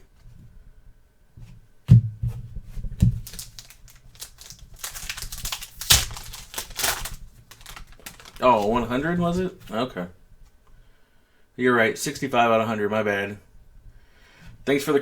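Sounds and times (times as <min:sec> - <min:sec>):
wrapper crinkling: 0:03.0 - 0:09.5.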